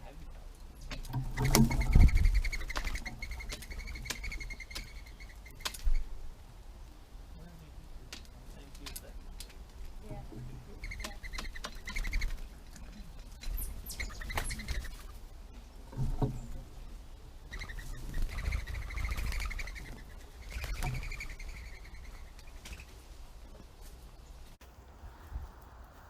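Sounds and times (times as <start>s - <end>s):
birds harsh rasping calls: 0.8s - 6.2s, 10.6s - 24.6s.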